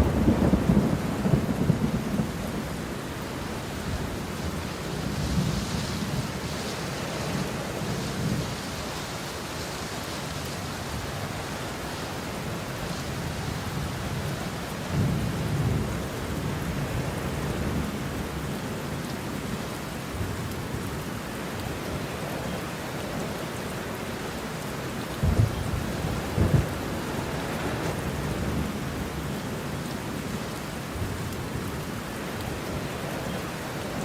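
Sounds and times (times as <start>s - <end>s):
thunder rumbling: 0.0s - 8.6s, 25.1s - 29.6s
steady rain: 0.0s - 34.0s.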